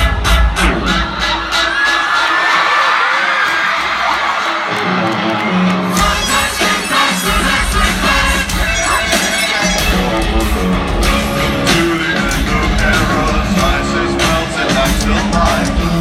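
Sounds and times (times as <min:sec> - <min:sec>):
drums: 0:00.0 - 0:16.0
electric guitar: 0:04.7 - 0:16.0
bass: 0:05.8 - 0:16.0
person singing: 0:11.2 - 0:16.0.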